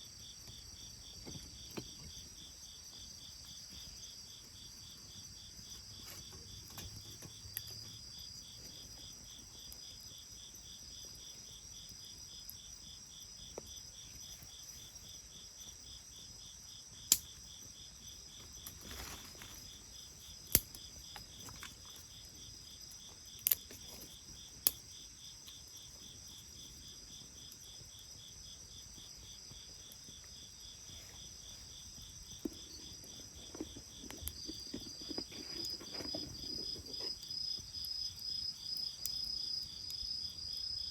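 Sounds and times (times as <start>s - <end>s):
insects trilling: 0.0s - 40.9s
bonfire wood popping: 18.2s - 28.1s, 28.7s - 40.4s.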